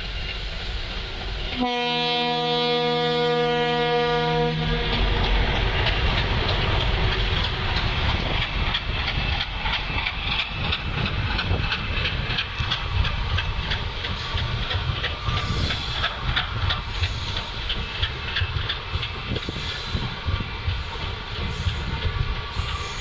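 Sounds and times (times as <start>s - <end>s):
train rumbling on rails: 0.0s - 23.0s
train horn: 1.5s - 5.2s.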